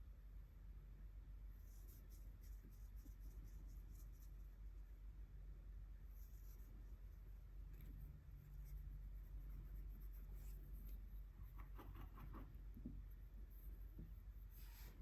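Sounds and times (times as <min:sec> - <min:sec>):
steady low hum: 0:00.0 - 0:15.0
scratchy strokes on paper: 0:01.6 - 0:04.5, 0:06.1 - 0:12.6, 0:13.4 - 0:15.0.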